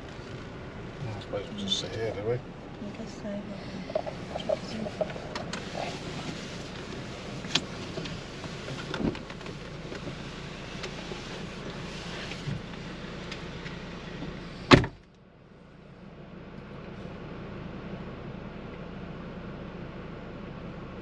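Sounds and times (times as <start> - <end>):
car engine idling: 0.0 - 21.0
loud thump: 14.7 - 15.0.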